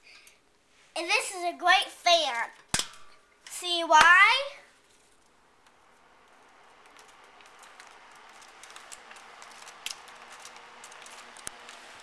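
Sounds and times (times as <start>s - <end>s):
fan rushing air: 4.7s - 12.0s.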